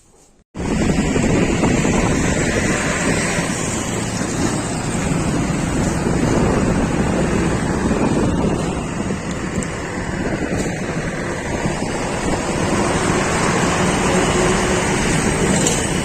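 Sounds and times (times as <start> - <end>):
vehicle rumble: 0.6 - 16.0
wind buffeting microphone: 0.6 - 16.0.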